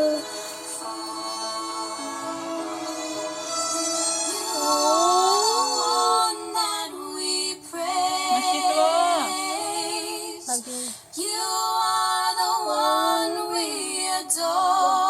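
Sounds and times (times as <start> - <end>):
woman singing with vibrato: 0.0 - 0.4, 4.3 - 15.0.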